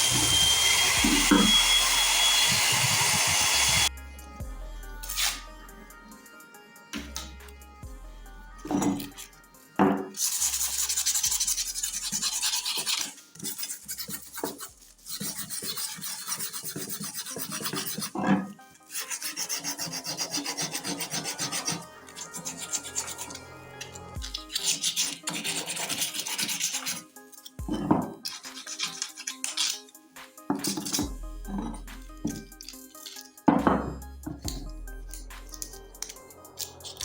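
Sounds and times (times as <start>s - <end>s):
abrasive scraping on metal plate: 0.0s - 1.8s.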